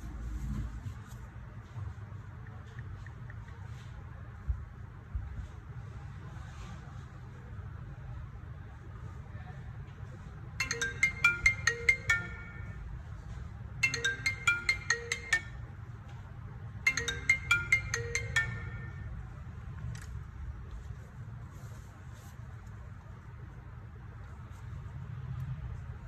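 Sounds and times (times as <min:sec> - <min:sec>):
phone ringtone melody: 0:10.6 - 0:16.0, 0:16.8 - 0:19.5.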